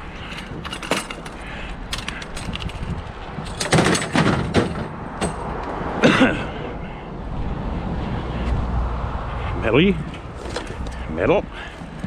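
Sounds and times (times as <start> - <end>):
scrap clicking and knocking: 0.1 - 5.8, 10.0 - 12.0.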